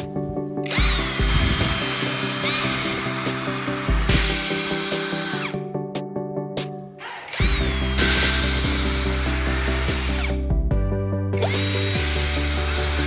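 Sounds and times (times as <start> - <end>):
background music: 0.0 - 13.0
power drill whining: 0.7 - 5.6, 7.0 - 10.4, 11.4 - 13.0.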